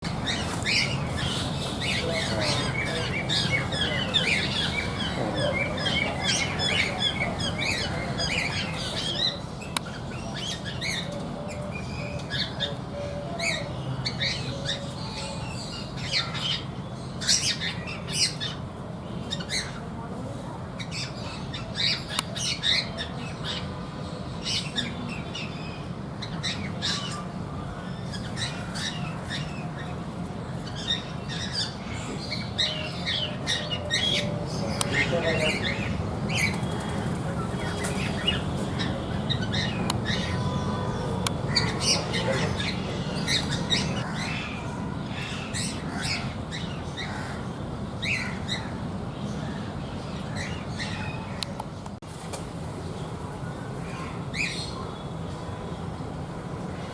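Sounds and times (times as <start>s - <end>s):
cockatiels chirping and squawking: 35.0s - 44.5s.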